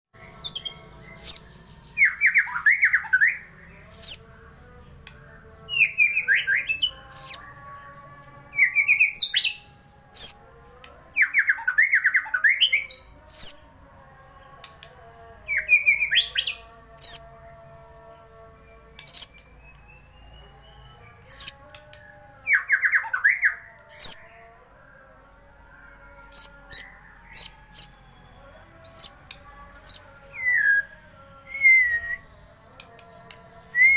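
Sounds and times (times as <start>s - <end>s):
bird whistled song: 0.3s - 4.3s, 5.7s - 7.5s, 8.6s - 10.4s, 11.2s - 13.6s, 15.5s - 17.2s, 18.9s - 24.2s, 26.2s - 33.9s.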